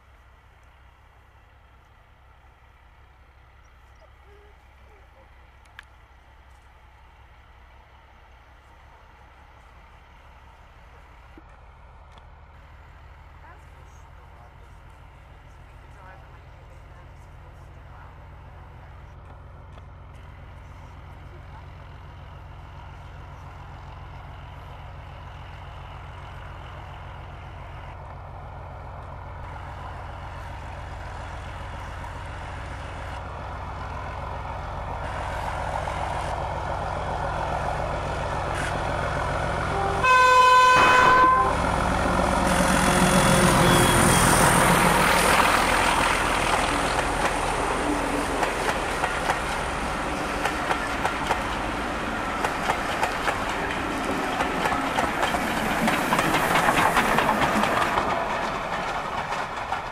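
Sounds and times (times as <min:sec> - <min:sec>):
diesel locomotive engine rumble: 0:00.0 - 0:59.9
train horn blast: 0:39.6 - 0:44.8
wheels clicking over rail joints: 0:44.6 - 0:59.9.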